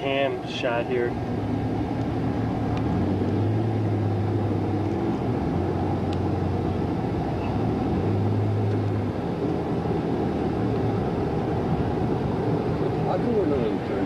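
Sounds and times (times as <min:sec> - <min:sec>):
road rumble: 0:00.0 - 0:14.0.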